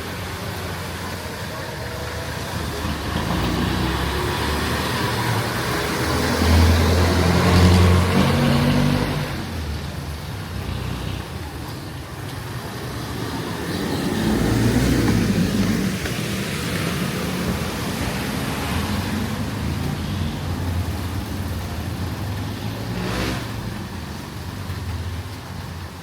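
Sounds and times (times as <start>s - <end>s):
vehicle engine passing: 2.6s - 9.8s.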